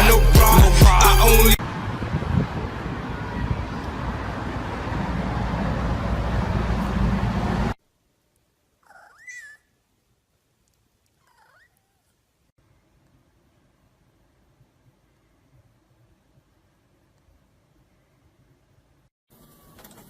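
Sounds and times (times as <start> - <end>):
cat meowing: 8.8 - 9.7, 11.2 - 12.1.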